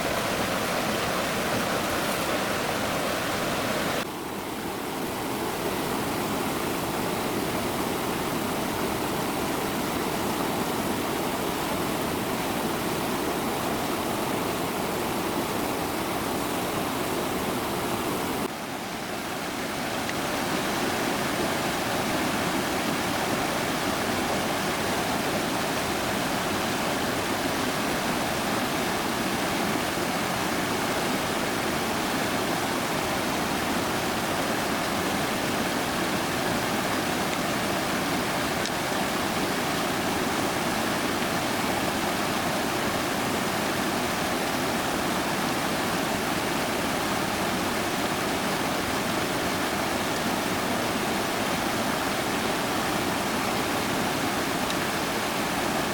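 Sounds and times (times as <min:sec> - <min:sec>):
flowing stream water: 0:00.0 - 0:55.9.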